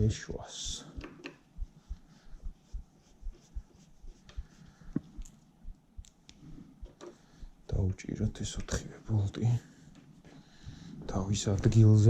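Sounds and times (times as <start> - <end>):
light knocks and clicks of parts: 0.9 - 1.4, 6.0 - 7.2.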